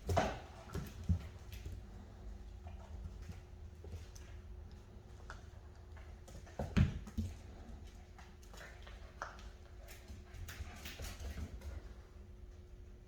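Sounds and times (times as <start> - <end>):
puppies scuffling: 0.0 - 12.5.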